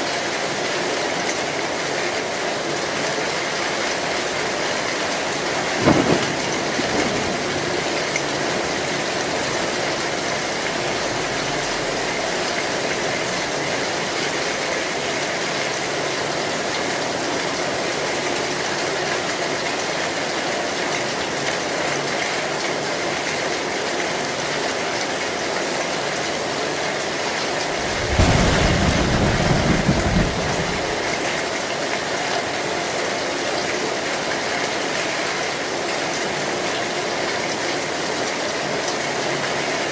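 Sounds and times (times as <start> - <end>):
heavy rain on a tin roof: 0.0 - 39.9
thunder rumbling: 4.1 - 14.0, 27.6 - 31.5.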